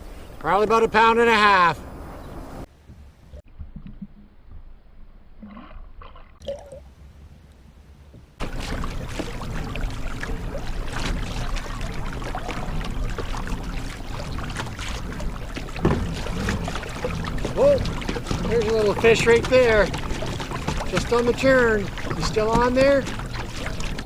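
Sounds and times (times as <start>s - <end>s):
small drips and knocks: 7.5s - 24.0s
water splashing against kayak: 8.1s - 24.0s.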